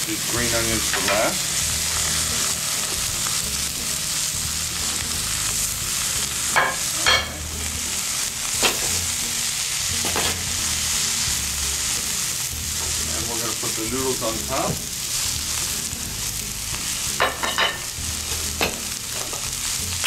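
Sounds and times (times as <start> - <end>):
vegetables sizzling in a wok: 0.0 - 20.0.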